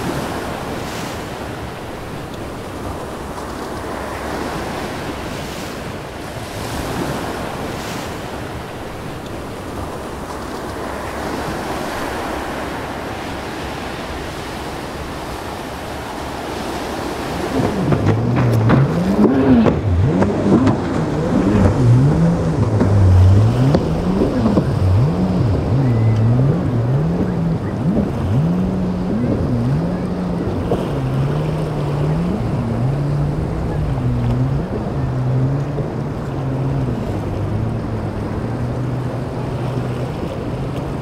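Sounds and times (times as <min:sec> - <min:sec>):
surf: 0:00.0 - 0:41.0
wind noise on microphone: 0:15.1 - 0:41.0
low tone rising and falling: 0:17.4 - 0:40.0.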